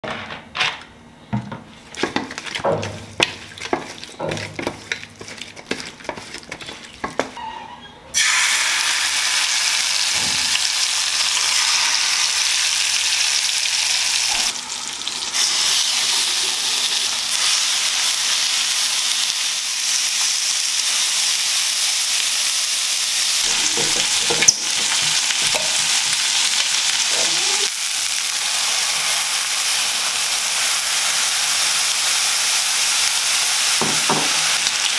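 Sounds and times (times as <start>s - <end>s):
hands rubbing chicken: 3.2s - 7.4s
chicken sizzling in oil: 8.1s - 34.9s.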